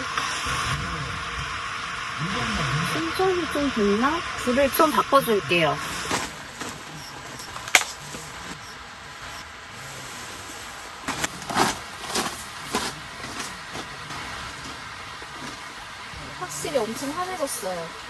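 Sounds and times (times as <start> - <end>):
rain on a tent: 9.9 - 17.9.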